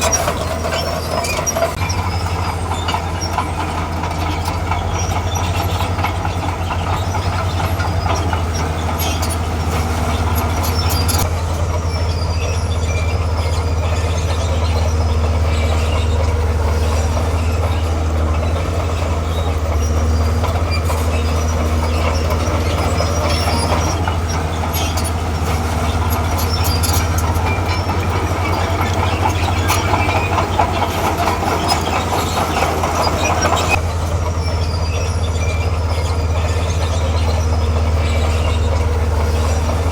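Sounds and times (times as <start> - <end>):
bulldozer diesel engine droning: 0.0 - 39.9
steel tracks clattering and squeaking: 0.0 - 39.9.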